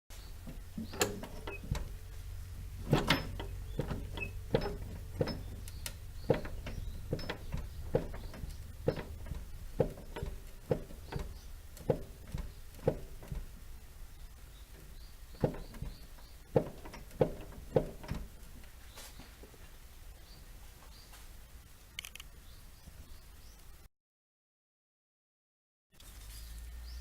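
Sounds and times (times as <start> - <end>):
suspension mount knocking: 0.4 - 13.6, 14.7 - 18.7.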